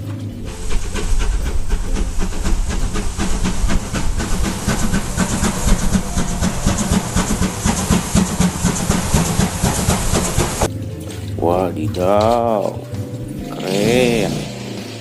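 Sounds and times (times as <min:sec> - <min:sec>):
low rumble: 0:00.0 - 0:10.7
steam locomotive chuffing: 0:00.0 - 0:10.7.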